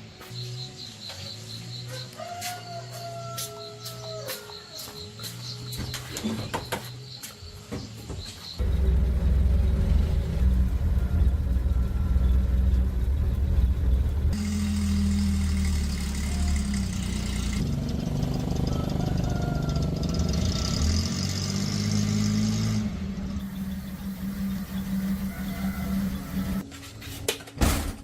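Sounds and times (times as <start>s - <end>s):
small petrol engines revving: 8.6s - 26.6s.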